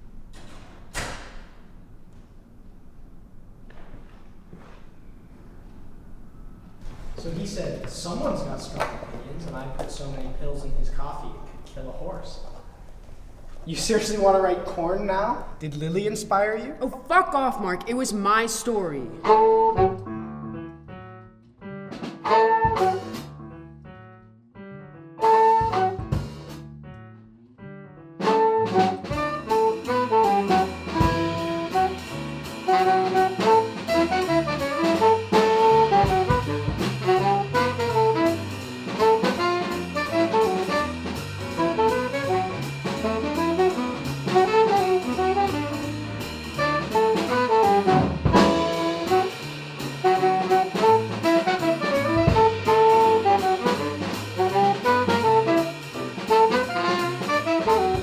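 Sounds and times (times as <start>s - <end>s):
upbeat jazz music: 6.8s - 20.2s, 22.0s - 23.5s, 25.2s - 26.6s, 28.2s - 58.0s.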